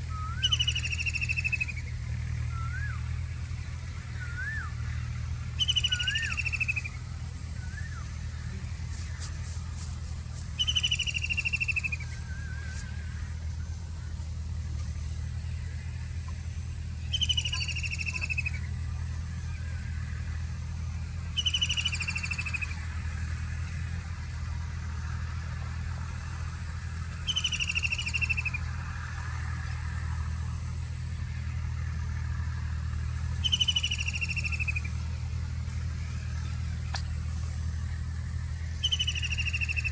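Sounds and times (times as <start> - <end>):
steady low hum: 0.0 - 39.9
kingfisher shrill trilling call: 0.2 - 1.8, 5.6 - 7.0, 10.6 - 13.0, 17.1 - 18.7, 21.4 - 22.8, 27.2 - 28.6, 33.4 - 34.9, 38.8 - 39.9.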